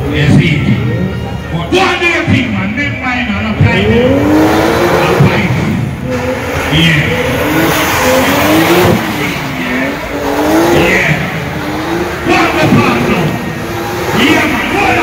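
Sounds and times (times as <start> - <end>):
car engine revving hard: 3.5 - 15.0.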